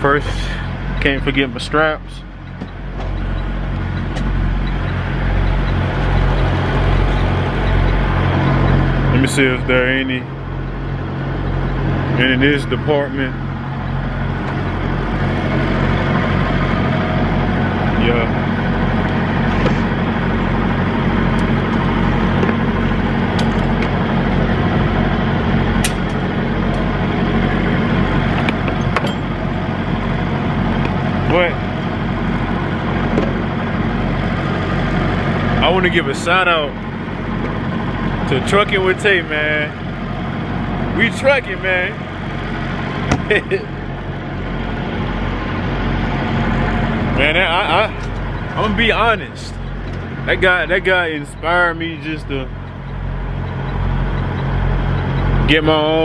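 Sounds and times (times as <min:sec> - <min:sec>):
diesel engine idling: 0:00.0 - 0:56.0
sharp clicks and taps: 0:02.4 - 0:08.8.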